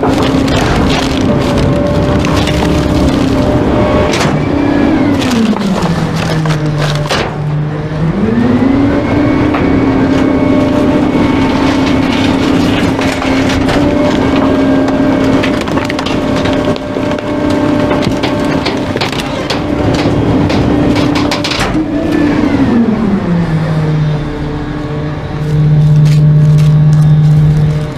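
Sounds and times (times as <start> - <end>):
cracking and splintering: 0.0 - 7.6, 9.5 - 22.2
garbage truck compactor crushing: 0.0 - 27.9
truck engine: 0.0 - 27.9.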